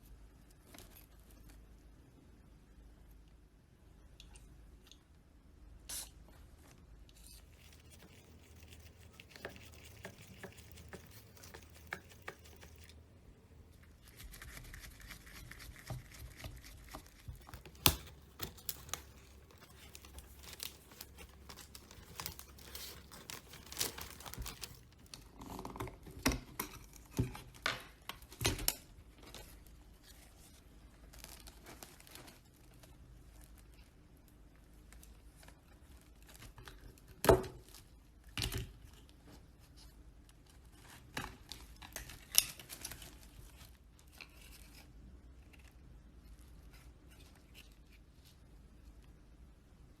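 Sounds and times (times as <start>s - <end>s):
scraping and rustling: 6.6s - 25.3s
clicks and small knocks: 17.2s - 28.8s.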